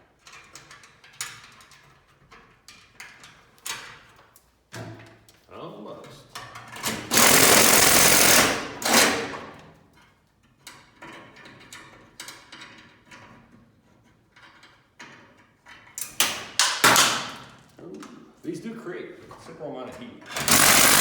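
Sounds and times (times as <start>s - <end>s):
impact driver drilling sheet metal: 6.9s - 9.5s, 20.3s - 21.0s.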